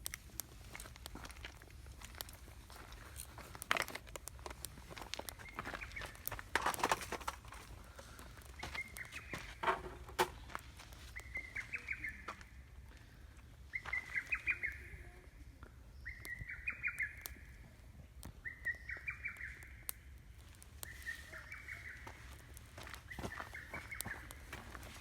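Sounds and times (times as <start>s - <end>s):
campfire crackling: 0.0s - 25.0s
songbird singing: 5.0s - 6.5s, 7.9s - 25.0s.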